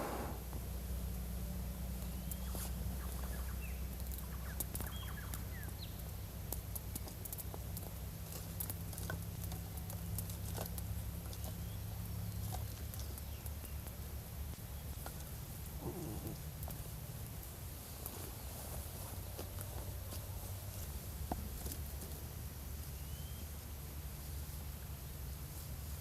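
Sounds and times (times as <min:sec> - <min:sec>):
birds chirping: 0:00.0 - 0:00.5
steady low hum: 0:00.0 - 0:04.2
sharp clicks and crackles: 0:04.0 - 0:11.5.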